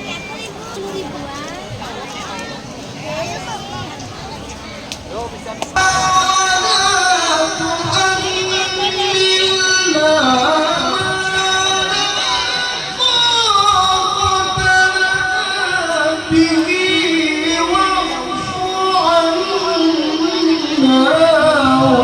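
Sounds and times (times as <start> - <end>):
man reciting in melodic chant: 5.7 - 22.0.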